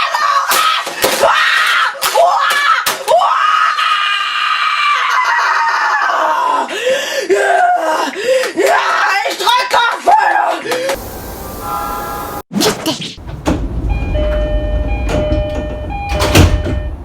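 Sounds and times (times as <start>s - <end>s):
boy screaming in rage: 0.0s - 10.6s.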